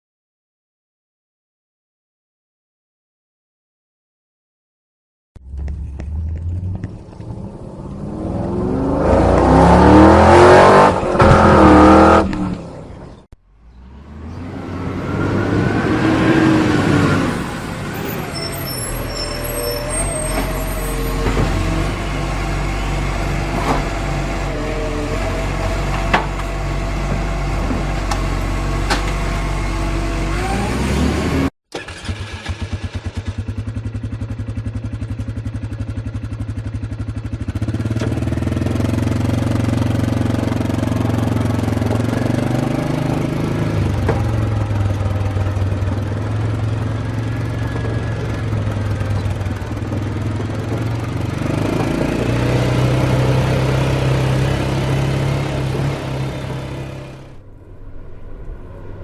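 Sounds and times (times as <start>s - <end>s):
vehicle engine running: 5.4s - 59.0s.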